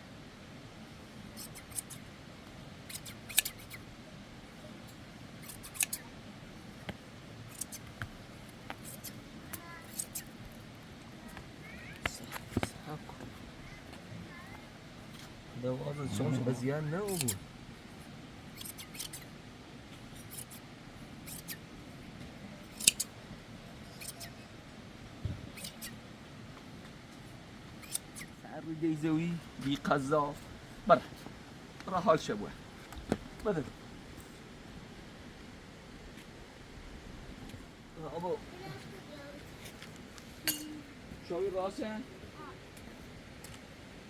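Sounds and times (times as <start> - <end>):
shears snipping wool: 1.3 - 2.1, 2.8 - 3.9, 5.4 - 6.1, 6.9 - 10.5, 16.9 - 17.5, 18.5 - 19.4, 20.0 - 21.7, 22.6 - 23.2, 23.9 - 24.4, 25.5 - 26.0, 27.7 - 28.4.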